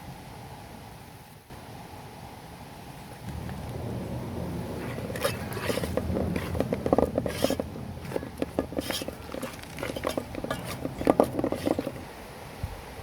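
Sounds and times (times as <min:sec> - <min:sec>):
cooking utensils clattering: 0:04.8 - 0:12.1.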